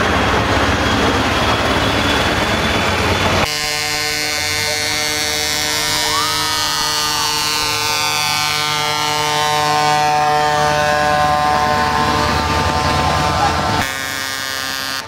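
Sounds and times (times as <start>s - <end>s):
truck engines rumbling: 0.0s - 15.0s
truck air horn: 3.4s - 15.0s.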